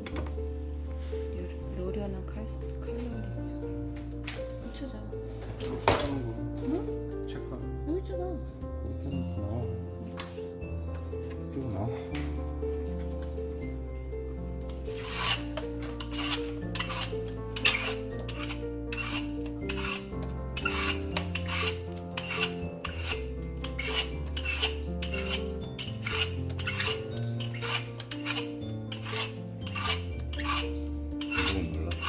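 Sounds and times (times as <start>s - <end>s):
background music: 0.0s - 32.0s
radish rasping on a grater: 15.0s - 15.4s, 16.0s - 32.0s.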